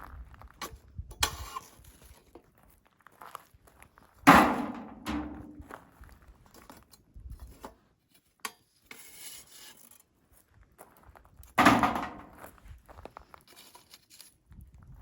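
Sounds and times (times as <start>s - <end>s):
hard objects knocking: 4.3s - 5.7s, 11.6s - 12.4s.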